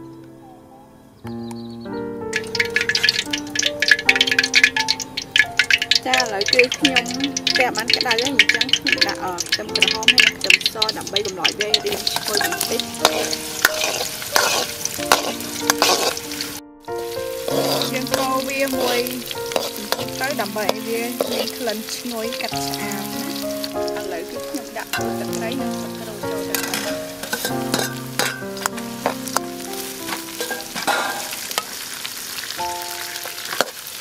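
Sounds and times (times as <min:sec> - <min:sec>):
simple melody: 0:00.0 - 0:33.6
shallots sizzling in hot oil: 0:02.3 - 0:34.0
herbs tipped into wok: 0:06.0 - 0:16.3, 0:17.4 - 0:21.8, 0:26.3 - 0:31.8
metal spatula scraping wok: 0:08.7 - 0:32.0.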